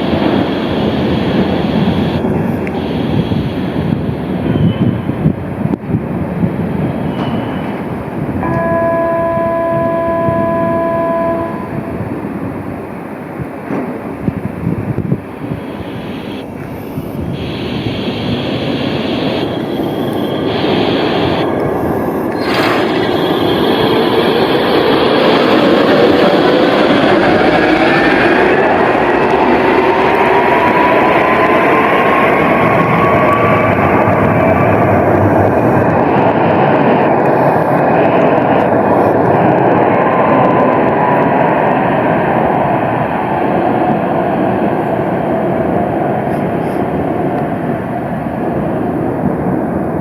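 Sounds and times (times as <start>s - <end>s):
steady horn tone: 0.0s - 5.1s, 8.4s - 12.1s, 14.6s - 25.6s
tram rail rumble: 0.0s - 50.0s
electric motor whine: 15.4s - 25.5s.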